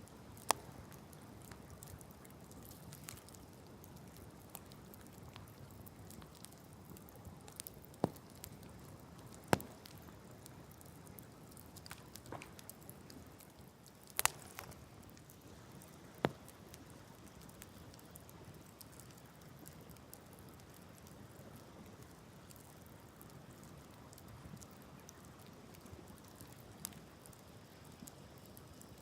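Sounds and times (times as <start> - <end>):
faint steady hiss: 0.0 - 29.0
wood fire crackling: 0.0 - 29.0.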